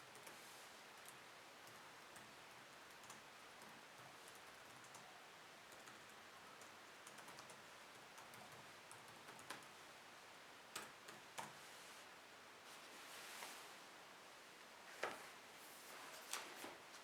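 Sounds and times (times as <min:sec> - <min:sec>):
faint background hiss: 0:00.0 - 0:17.0
keyboard typing: 0:02.9 - 0:05.1, 0:05.7 - 0:09.7.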